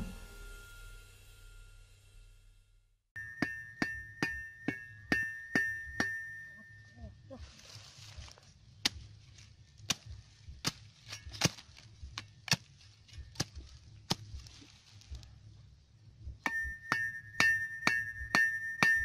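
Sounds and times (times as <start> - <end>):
ringing bell-like note: 0.0 - 7.2.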